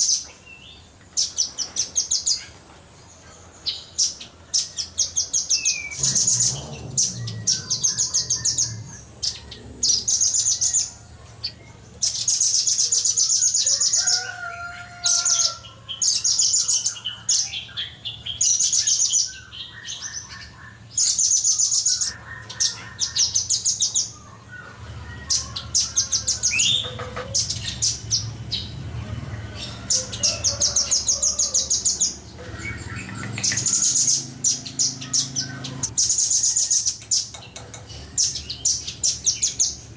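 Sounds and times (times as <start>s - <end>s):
nuthatch high-pitched trills: 5.0s - 11.0s.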